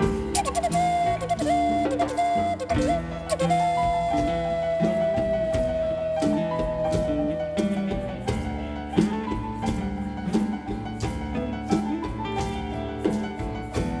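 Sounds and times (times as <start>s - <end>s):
flute held note: 0.3s - 8.3s.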